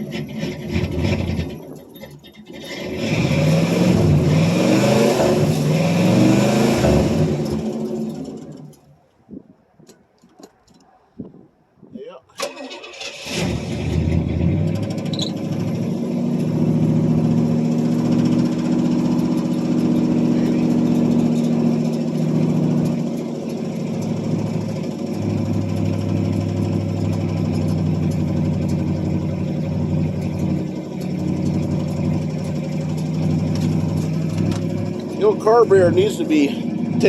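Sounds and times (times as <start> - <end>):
car engine rough idle: 13.8 - 37.0.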